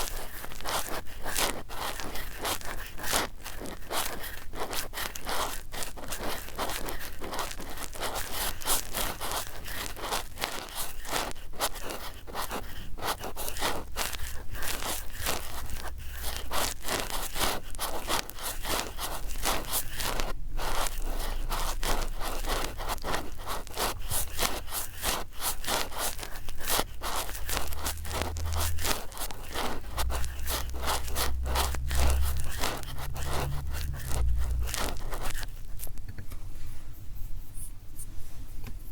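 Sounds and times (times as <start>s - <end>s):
swabs scratching a microphone: 0.0s - 36.1s
low rumble: 14.8s - 18.1s, 20.2s - 24.4s, 26.7s - 36.1s.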